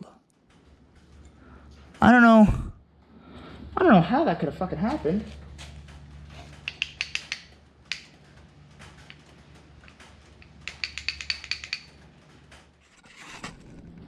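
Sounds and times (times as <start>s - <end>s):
metal engine parts clicking: 5.2s - 12.9s.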